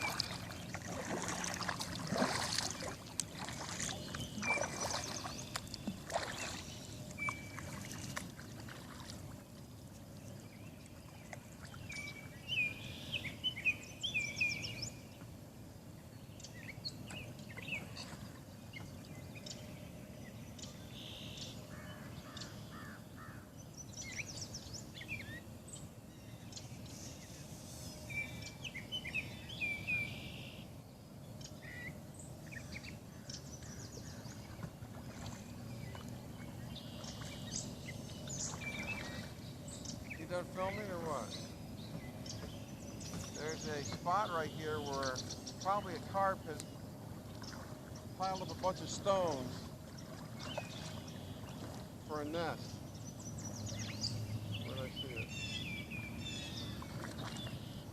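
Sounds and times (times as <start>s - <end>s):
bird chirps: 2.7s - 8.2s, 16.4s - 30.7s, 31.3s - 57.9s
blackbird singing: 3.6s - 7.7s, 10.5s - 15.2s, 28.1s - 30.6s, 35.7s - 49.6s, 50.4s - 57.8s.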